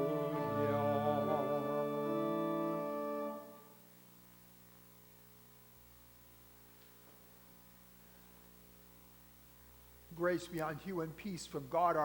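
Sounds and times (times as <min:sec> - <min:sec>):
congregation singing: 0:00.0 - 0:03.7
church organ chord: 0:00.0 - 0:03.8
faint room hum: 0:00.0 - 0:12.0.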